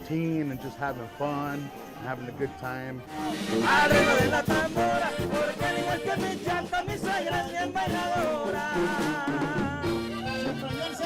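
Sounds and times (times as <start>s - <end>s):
band music with wavering melody: 2.8s - 11.0s.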